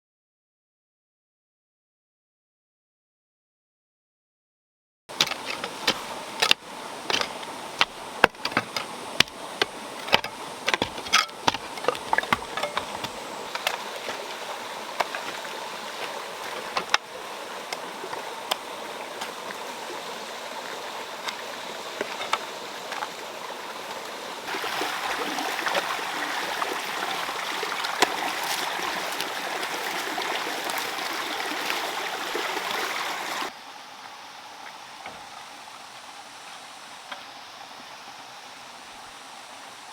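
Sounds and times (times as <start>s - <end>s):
sharp clicks and splashes: 5.1s - 19.6s, 21.2s - 33.5s
running water flowing: 5.1s - 39.9s.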